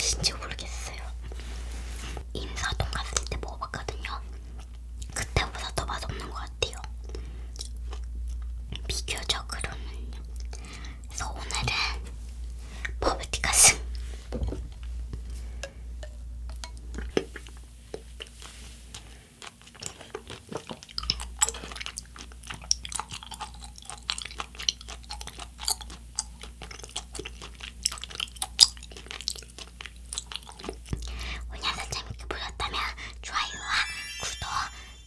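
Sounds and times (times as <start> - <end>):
mouth chewing clicks and crunches: 2.6 - 11.9, 16.0 - 32.8.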